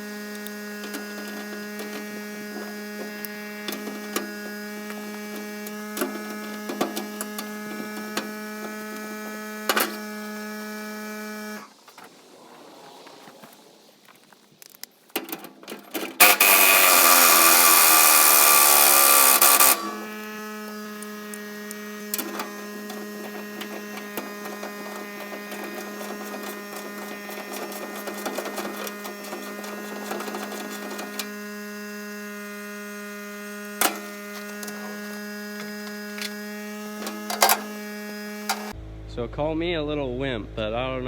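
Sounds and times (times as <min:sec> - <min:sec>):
steady low hum: 0:19.7 - 0:41.0.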